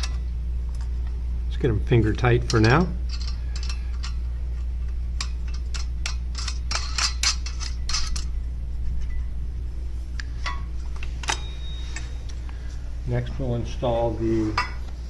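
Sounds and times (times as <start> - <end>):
steady low hum: 0.0 - 15.0
metal nuts clinking on bolts: 2.4 - 4.2, 4.8 - 8.3.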